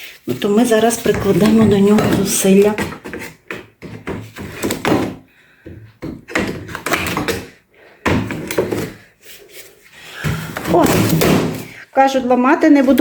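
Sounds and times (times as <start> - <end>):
wall panel pried off: 6.0 - 9.1, 10.2 - 11.8.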